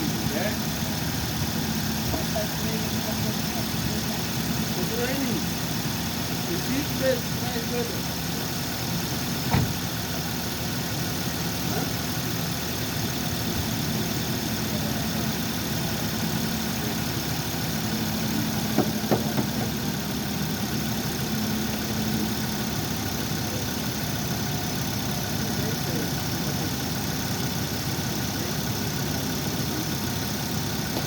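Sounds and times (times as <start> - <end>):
car engine idling: 0.0 - 31.0.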